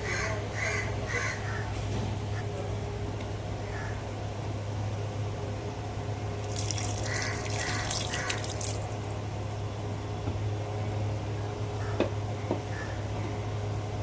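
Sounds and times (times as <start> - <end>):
water splashing: 6.4 - 9.2.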